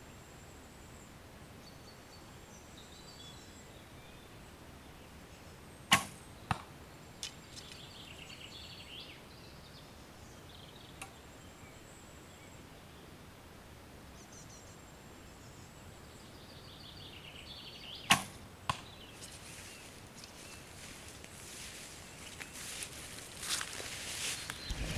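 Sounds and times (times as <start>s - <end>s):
bow release: 5.9s - 6.2s, 18.1s - 18.4s
arrow thudding into target: 5.9s - 6.6s, 18.1s - 18.8s, 24.6s - 24.9s
birds chirping: 7.2s - 9.2s, 16.8s - 24.9s.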